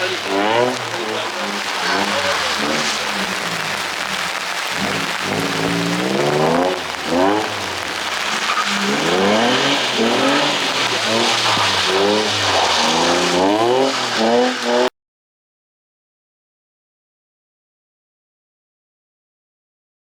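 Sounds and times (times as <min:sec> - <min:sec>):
steady hiss: 0:00.0 - 0:14.8
car engine revving hard: 0:00.0 - 0:14.9.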